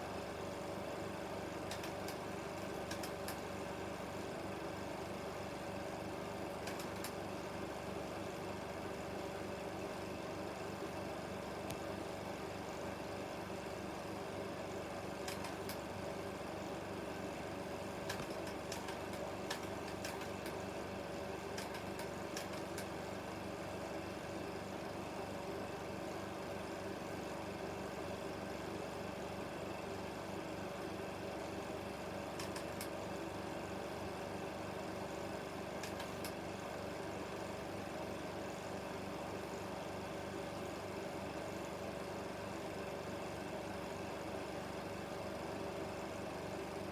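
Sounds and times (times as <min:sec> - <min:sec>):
film projector whirring: 0:00.0 - 0:46.9
projector clicks: 0:01.7 - 0:03.5, 0:06.6 - 0:07.2, 0:15.2 - 0:15.9, 0:18.0 - 0:20.6, 0:21.5 - 0:23.0, 0:32.4 - 0:33.0, 0:35.8 - 0:36.4.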